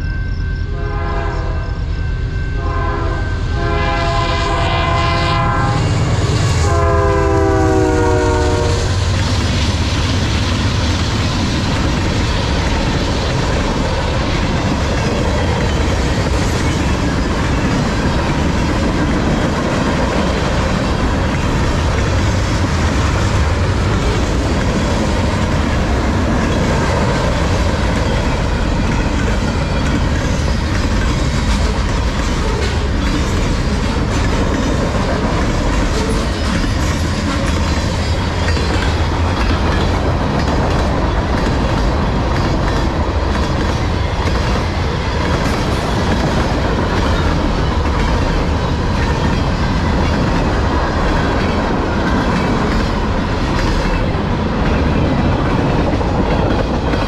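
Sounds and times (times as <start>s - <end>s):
locomotive horn blasts: 0.7s - 1.8s, 2.6s - 9.0s.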